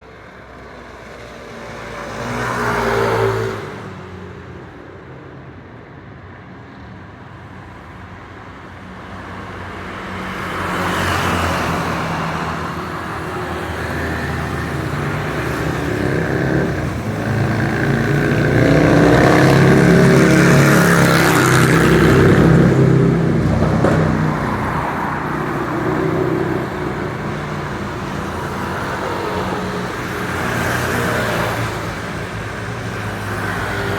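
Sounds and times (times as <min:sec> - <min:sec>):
loud engines passing: 0:00.0 - 0:05.6, 0:07.6 - 0:33.9
steady traffic rumble: 0:00.0 - 0:33.9
vehicle passing close: 0:10.2 - 0:33.9.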